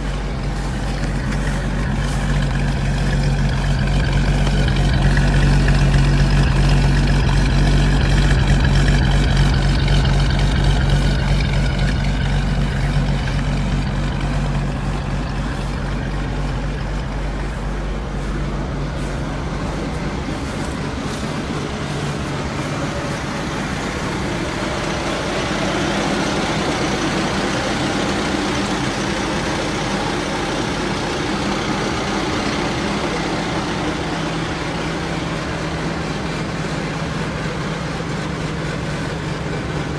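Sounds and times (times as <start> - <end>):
car engine fast idle: 0.0 - 39.9.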